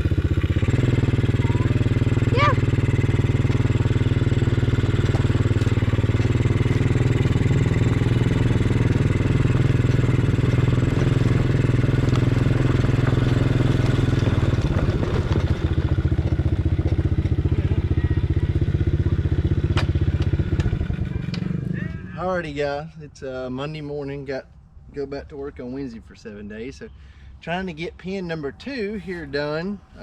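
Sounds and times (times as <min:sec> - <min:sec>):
engine running: 0:00.0 - 0:30.0.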